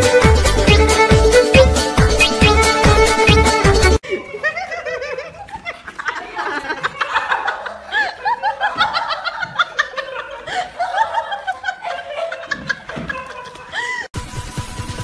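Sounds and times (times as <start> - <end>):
high-pitched laughter: 4.0 - 14.1.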